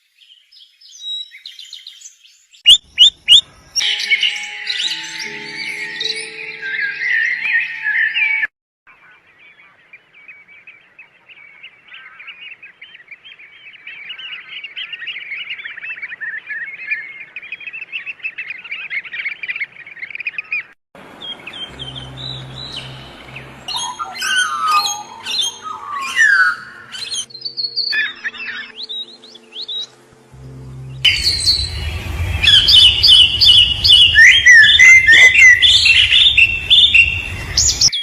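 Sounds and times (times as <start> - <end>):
birds chirping: 0.3 - 38.0
low steady hum: 29.9 - 37.9.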